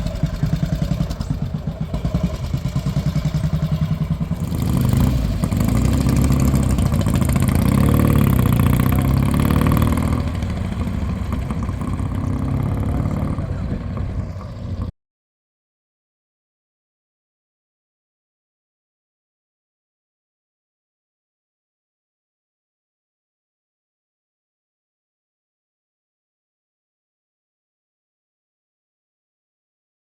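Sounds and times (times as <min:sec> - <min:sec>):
motorcycle engine running: 0:00.0 - 0:14.9.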